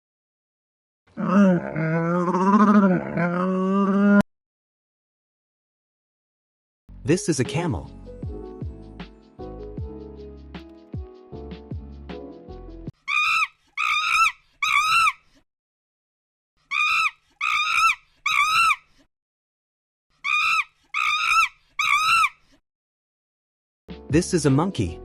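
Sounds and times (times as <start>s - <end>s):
monkey shrieking: 1.2s - 4.2s, 13.0s - 15.2s, 16.6s - 18.9s, 20.2s - 22.4s.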